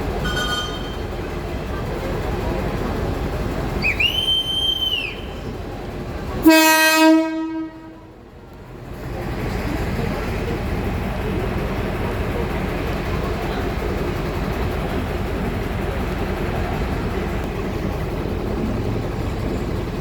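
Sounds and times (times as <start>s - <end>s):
train rumble: 0.0s - 20.0s
short high whistle: 3.8s - 5.4s
train horn blast: 6.4s - 8.1s.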